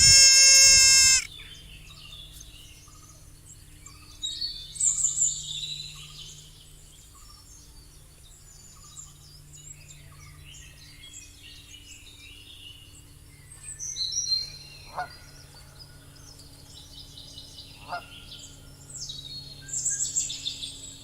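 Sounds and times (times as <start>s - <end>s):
birds chirping: 0.0s - 1.3s
faint steady hum: 0.0s - 1.3s.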